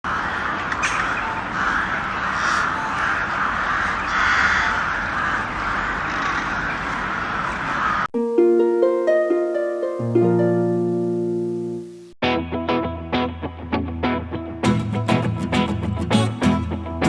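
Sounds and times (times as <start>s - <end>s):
crows cawing: 0.1s - 8.1s.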